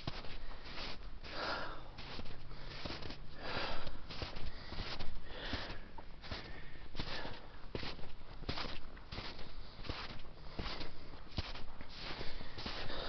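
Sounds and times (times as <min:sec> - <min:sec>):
footsteps crunching in snow: 0:00.0 - 0:13.0
person breathing hard: 0:00.2 - 0:07.7, 0:12.0 - 0:13.0.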